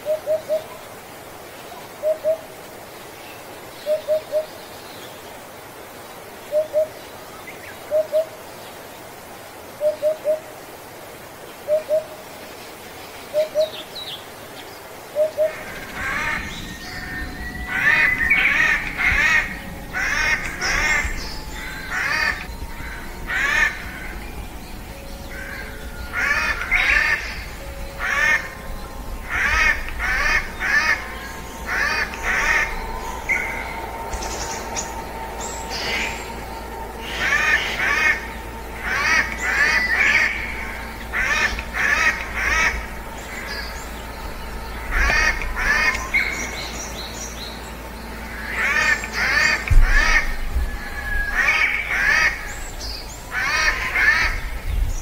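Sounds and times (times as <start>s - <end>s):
low paired bird notes: 1.6s - 9.1s, 11.5s - 55.0s
harsh repeated bird calls: 15.2s - 55.0s.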